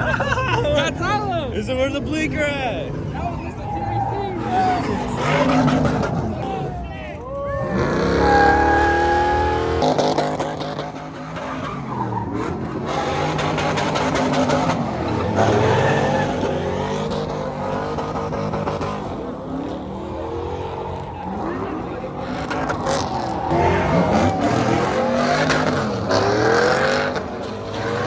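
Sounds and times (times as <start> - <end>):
truck engine revving: 0.0 - 28.0
tyres squealing: 7.7 - 19.0.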